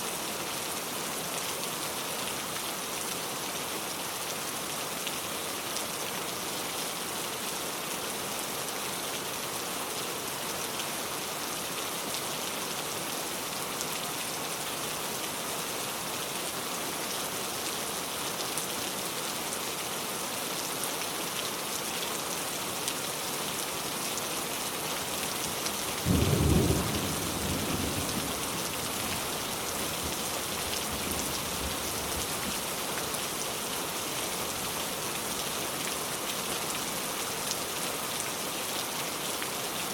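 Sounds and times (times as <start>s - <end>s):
steady rain hissing: 0.0s - 39.9s
low rumble of thunder: 26.1s - 32.2s.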